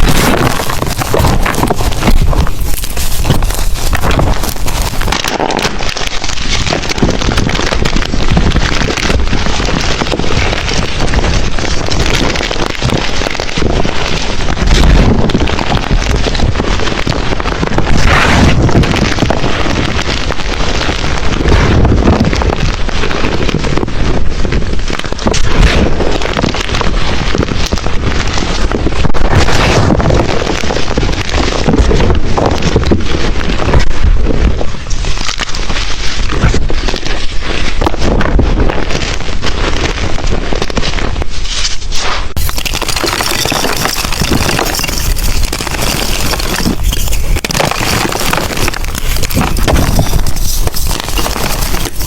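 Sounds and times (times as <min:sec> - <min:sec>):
chalk being crushed by hand: 0:00.0 - 0:07.3, 0:41.4 - 0:52.0.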